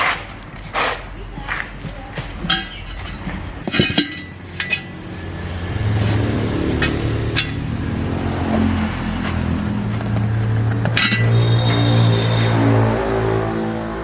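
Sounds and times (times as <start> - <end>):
metal tools clinking: 2.4 - 5.5, 6.6 - 12.1.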